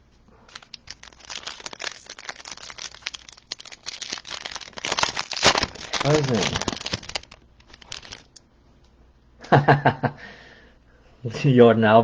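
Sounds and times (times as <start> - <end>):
foil wrapper crinkling and tearing: 0.4 - 8.4.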